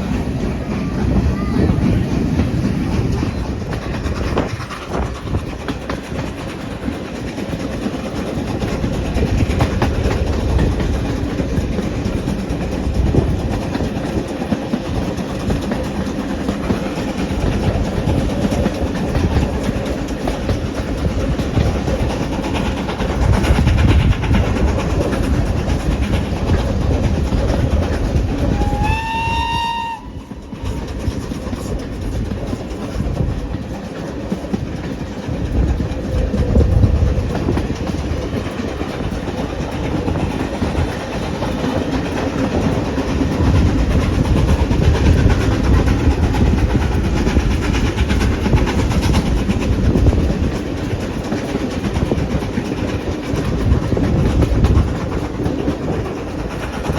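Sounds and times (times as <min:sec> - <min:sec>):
train rumbling: 0:00.0 - 0:56.9
wheels clicking over rail joints: 0:00.0 - 0:56.9
short high train whistle toot: 0:28.6 - 0:30.3.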